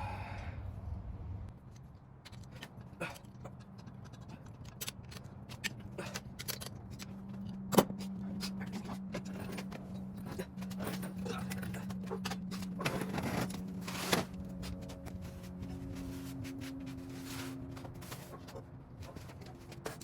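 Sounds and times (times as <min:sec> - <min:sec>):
steady low hum: 0:00.0 - 0:20.0
metal tools clinking: 0:02.3 - 0:14.8.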